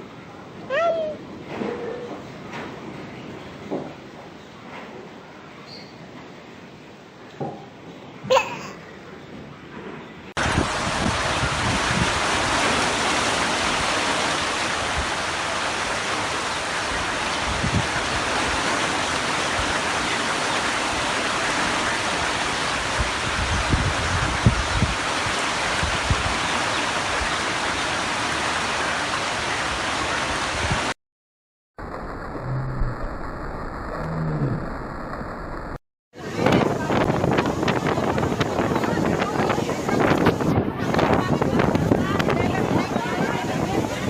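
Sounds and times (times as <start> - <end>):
heavy rain pouring: 10.4 - 31.0, 36.2 - 44.0
low sounds: 31.8 - 35.8.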